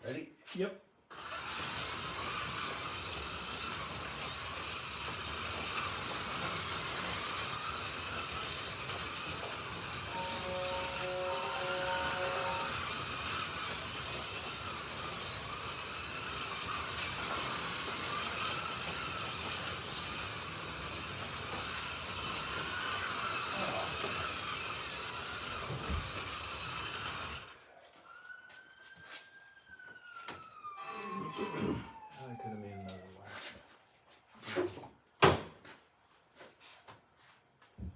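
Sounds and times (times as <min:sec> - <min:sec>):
slot car motors whining: 0:01.1 - 0:27.7
electronic tone: 0:10.1 - 0:12.6.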